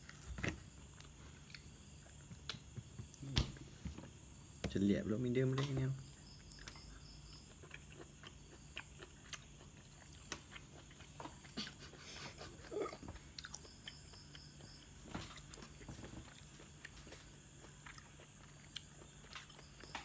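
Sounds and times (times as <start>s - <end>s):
faint chewing of meat: 6.0s - 20.0s.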